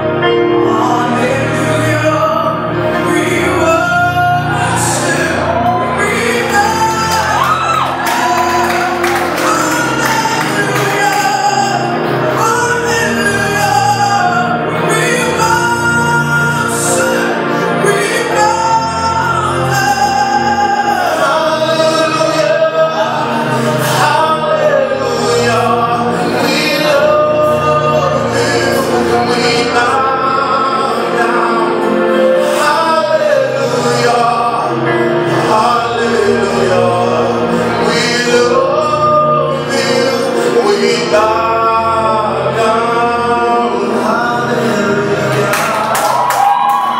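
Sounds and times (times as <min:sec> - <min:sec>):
band accompaniment: 0:00.0 - 0:46.9
singers holding long notes: 0:00.0 - 0:46.9.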